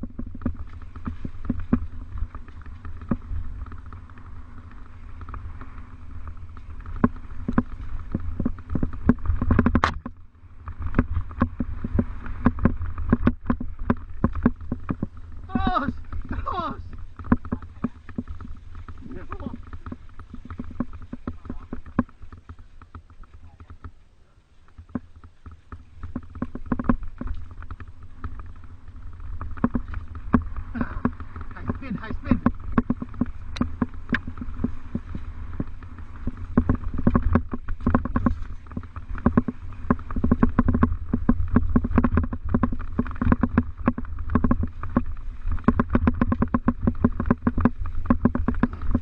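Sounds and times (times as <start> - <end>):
low rumble: 0.0 - 23.9
bike rattling over rough ground: 0.0 - 49.0
wind on microphone: 24.8 - 49.0.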